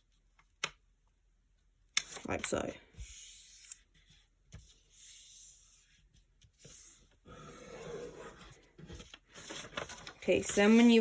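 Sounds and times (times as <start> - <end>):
paper rustling and creasing: 5.8 - 11.0.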